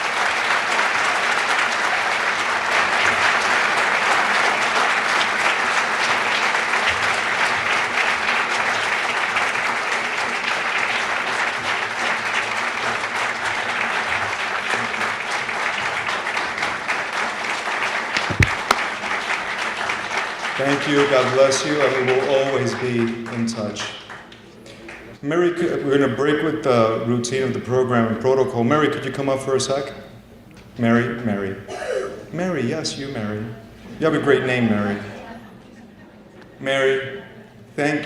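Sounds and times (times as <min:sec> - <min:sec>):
crowd clapping: 0:00.0 - 0:25.2
brief thump: 0:18.2 - 0:18.8.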